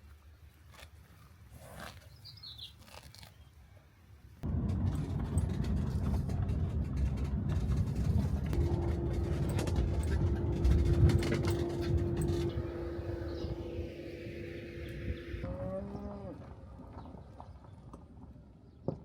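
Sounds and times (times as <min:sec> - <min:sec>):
steady hum: 0:04.4 - 0:15.4
motor vehicle rumble: 0:04.4 - 0:15.5.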